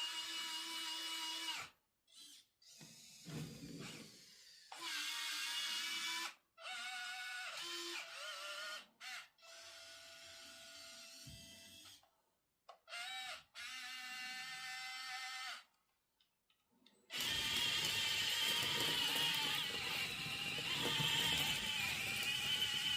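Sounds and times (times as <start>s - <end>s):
small electric motors whining: 17.1s - 22.9s.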